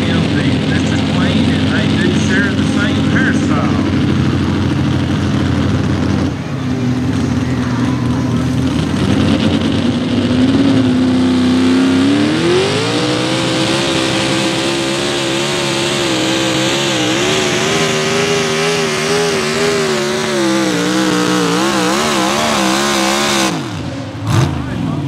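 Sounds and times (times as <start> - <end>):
tractor engine revving: 0.0 - 25.0.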